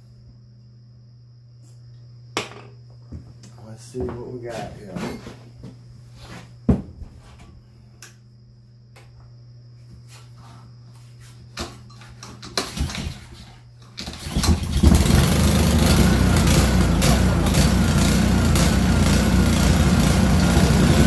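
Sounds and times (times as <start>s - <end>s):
pressure washer engine running: 14.1s - 21.0s.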